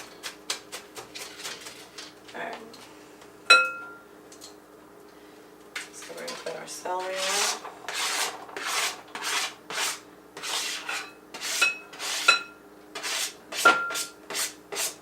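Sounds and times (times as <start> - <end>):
knife scraping on cutting board: 7.0 - 15.0.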